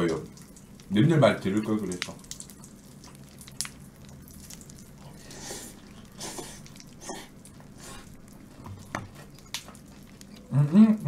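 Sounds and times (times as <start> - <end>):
faint steady hum: 0.0 - 11.0
crunchy chewing: 2.1 - 10.8.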